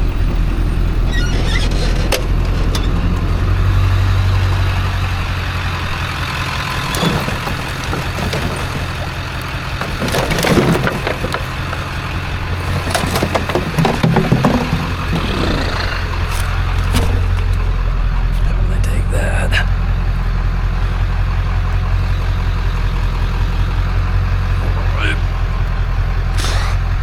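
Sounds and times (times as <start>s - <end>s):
vehicle engine idling: 0.0s - 27.0s
objects knocking and clattering: 6.6s - 18.4s.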